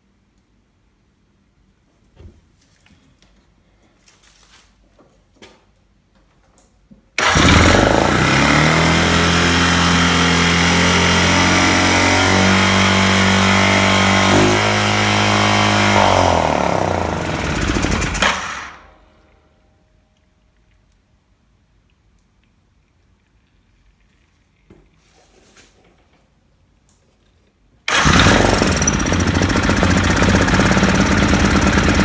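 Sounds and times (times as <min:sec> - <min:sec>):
atv engine revving high: 0:07.2 - 0:18.9, 0:27.9 - 0:32.0.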